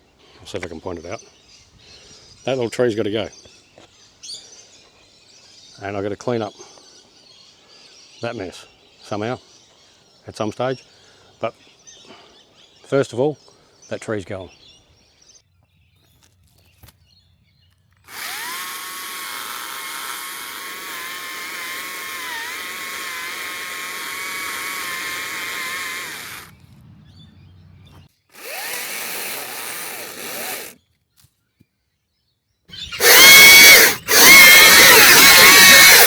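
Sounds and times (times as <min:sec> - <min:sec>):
chainsaw cutting wood: 0:18.1 - 0:26.6, 0:28.3 - 0:30.8, 0:33.0 - 0:36.0.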